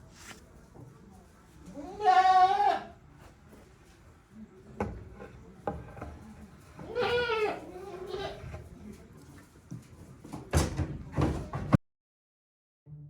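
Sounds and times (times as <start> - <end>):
goats bleating: 1.8 - 2.9, 6.8 - 8.5.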